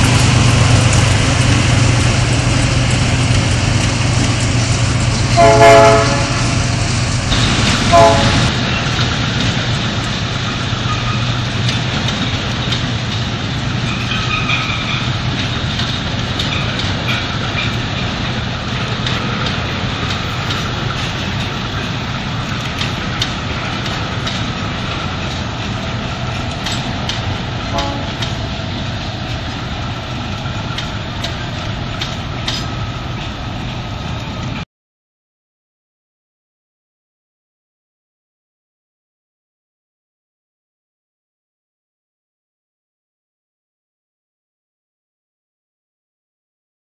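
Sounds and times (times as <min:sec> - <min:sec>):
locomotive engines droning: 0:00.0 - 0:34.6
train wheels clicking on track: 0:00.0 - 0:34.6
high wheel squeal: 0:13.9 - 0:15.2.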